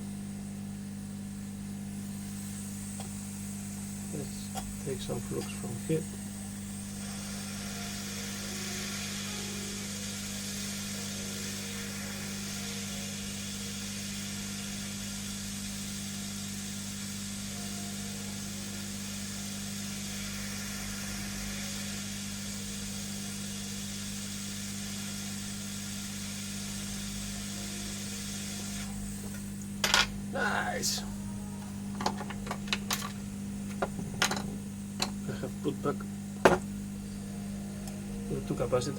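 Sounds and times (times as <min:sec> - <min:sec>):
hot air gun blowing: 0:05.1 - 0:29.4
low hum: 0:34.7 - 0:38.9.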